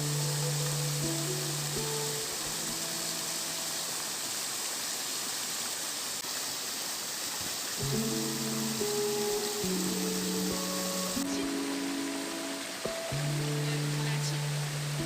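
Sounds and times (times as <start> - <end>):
background music: 0.0 - 3.8, 7.8 - 15.0
waterfall rushing: 0.0 - 15.0.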